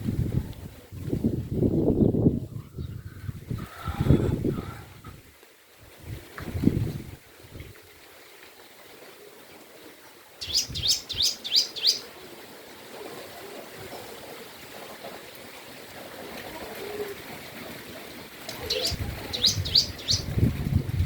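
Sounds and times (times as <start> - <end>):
bird chirping: 10.4 - 12.1, 18.7 - 20.4.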